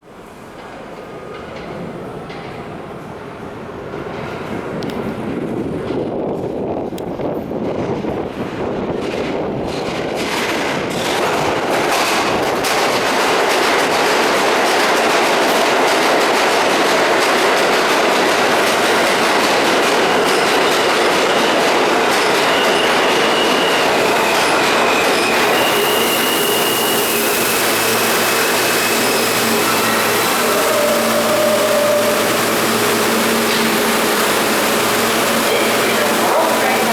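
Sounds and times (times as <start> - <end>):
subway train wheels on rails: 0.0 - 36.9
high thin squeals: 22.2 - 36.5.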